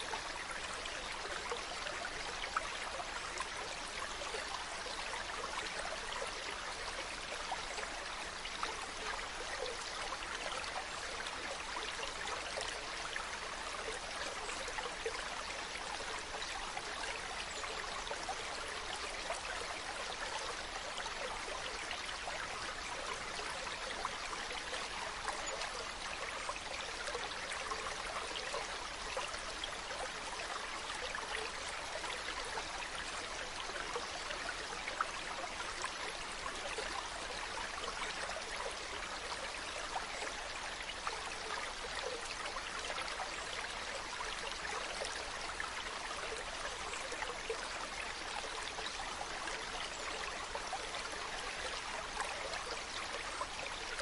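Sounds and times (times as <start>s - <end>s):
stream running over rocks: 0.0s - 54.0s.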